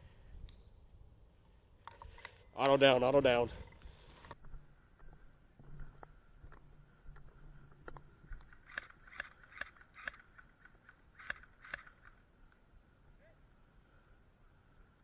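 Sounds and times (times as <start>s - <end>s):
faint sharp clicks: 7.2s - 12.6s.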